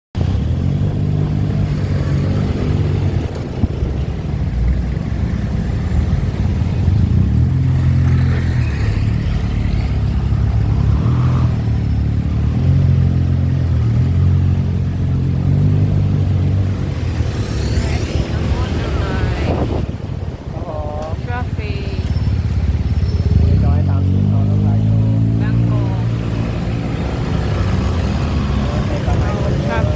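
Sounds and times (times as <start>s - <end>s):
low rumble of riding: 0.2s - 29.9s
motorbike engine revving: 20.5s - 29.9s.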